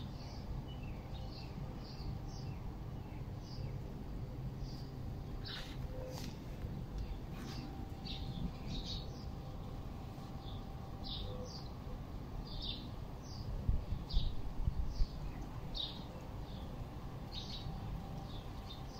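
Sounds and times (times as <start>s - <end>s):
small birds chirping: 4.6s - 11.8s, 12.4s - 18.9s.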